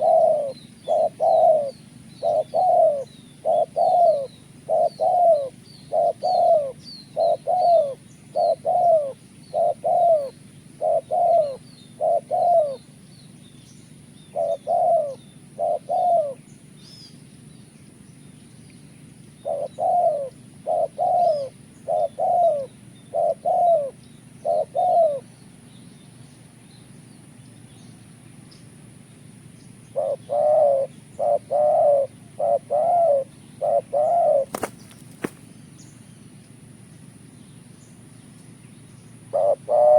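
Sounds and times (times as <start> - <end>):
dove cooing: 0.0 - 13.0, 14.2 - 16.5, 19.4 - 25.3, 29.8 - 35.4, 39.2 - 39.9
small birds chirping: 0.0 - 39.9
steady high-pitched whine: 0.0 - 39.9.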